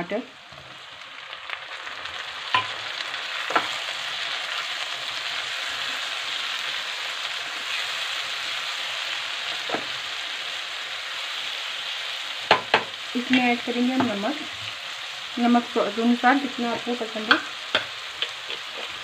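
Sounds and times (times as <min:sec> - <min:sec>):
vegetables sizzling in hot oil: 0:00.0 - 0:19.0
spatula stirring: 0:17.2 - 0:19.0.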